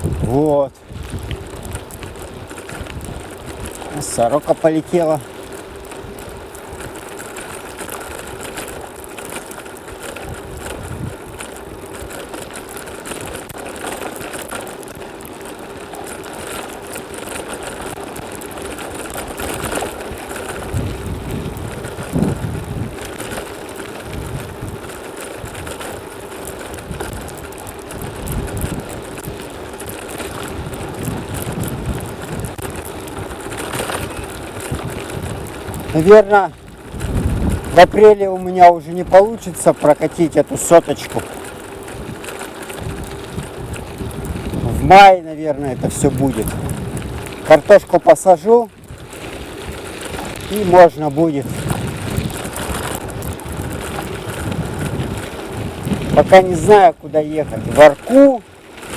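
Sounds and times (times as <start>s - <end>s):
bicycle whirring: 0.0s - 58.9s
wind buffeting microphone: 0.0s - 58.9s.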